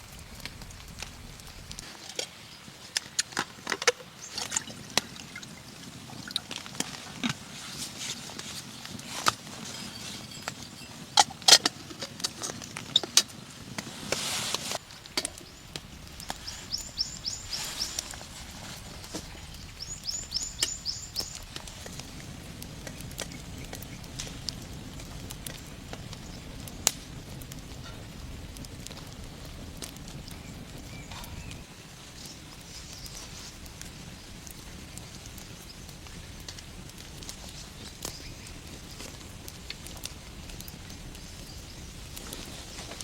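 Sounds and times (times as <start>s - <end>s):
high chirps: 15.3s - 18.3s, 18.9s - 21.5s.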